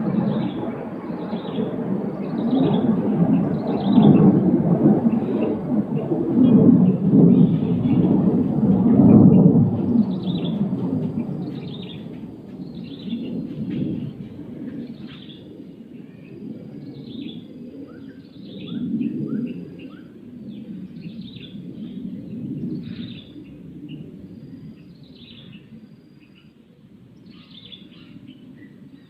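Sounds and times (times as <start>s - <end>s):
small birds chirping: 0.1s - 4.2s, 8.8s - 29.0s
low rumble: 3.0s - 17.2s.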